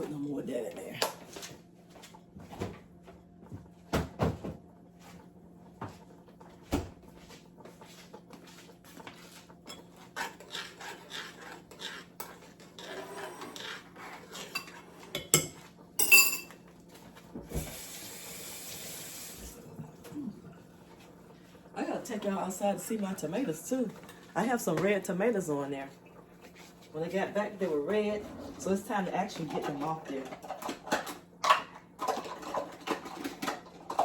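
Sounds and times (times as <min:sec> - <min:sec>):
dishes and cutlery clinking: 0:14.4 - 0:16.6
water running from tap: 0:17.5 - 0:19.9.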